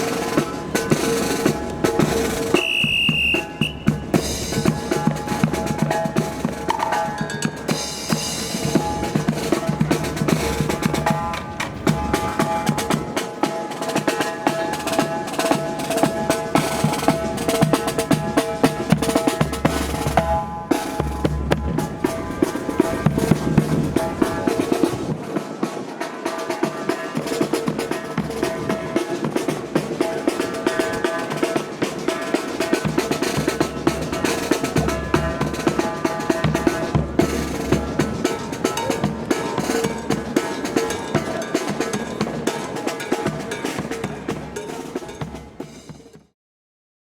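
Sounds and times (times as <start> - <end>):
rapid snare drum strokes: 0.0 - 46.3
bass drum strokes: 19.4 - 25.1.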